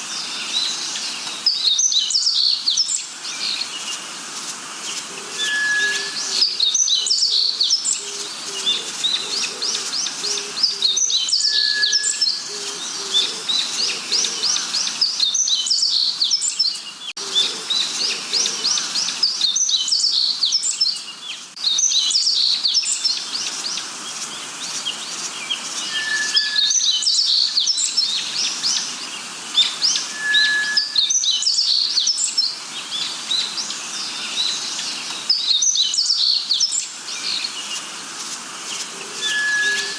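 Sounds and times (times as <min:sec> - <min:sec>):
short clear bird whistles: 0:05.4 - 0:06.6, 0:25.9 - 0:27.2, 0:30.1 - 0:31.1, 0:39.2 - 0:39.9
rapid high bird chirps: 0:25.5 - 0:28.8, 0:29.6 - 0:32.5, 0:39.2 - 0:39.9.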